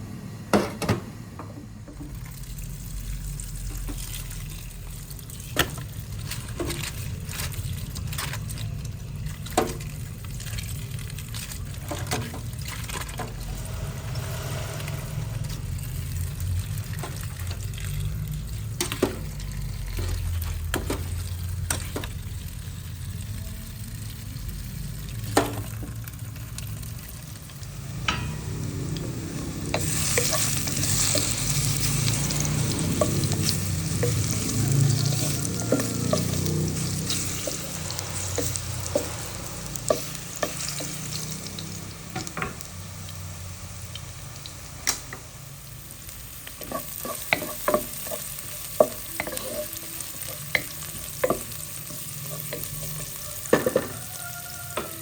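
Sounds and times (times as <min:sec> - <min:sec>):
food sizzling in a pan: 0:02.1 - 0:55.0
steady low hum: 0:27.3 - 0:35.7.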